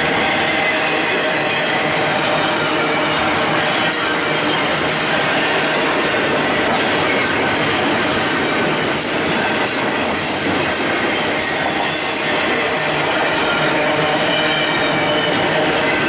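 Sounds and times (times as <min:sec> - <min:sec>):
steel wheels rolling on track: 0:00.0 - 0:16.0
high wheel squeals: 0:11.0 - 0:16.0.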